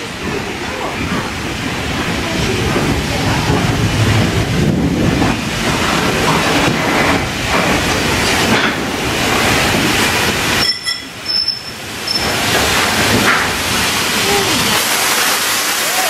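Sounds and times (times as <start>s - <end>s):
train wheels rushing on rails: 0.0s - 16.0s
high wheel squeal: 10.6s - 12.5s.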